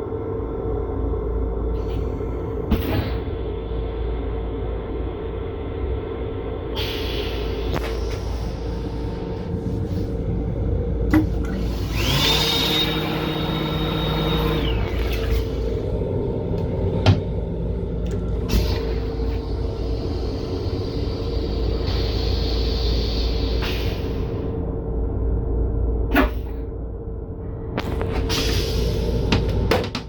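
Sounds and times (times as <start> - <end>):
train running rumble and hum: 0.0 - 30.0
hiss with high whine: 6.5 - 10.8, 18.5 - 24.5.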